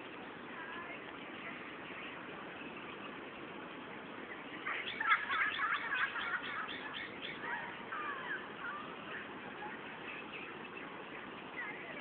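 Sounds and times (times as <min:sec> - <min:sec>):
bird chirping: 0:01.2 - 0:12.0
bird whistling: 0:04.6 - 0:09.0.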